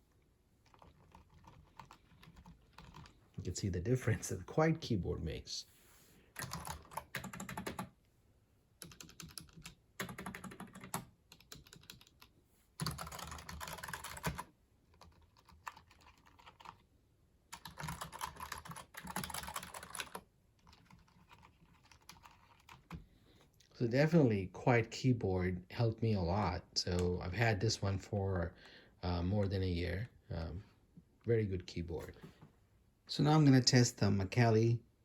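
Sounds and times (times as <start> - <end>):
computer keyboard typing: 0.6 - 3.2, 6.4 - 7.9, 8.8 - 16.8, 17.5 - 23.0.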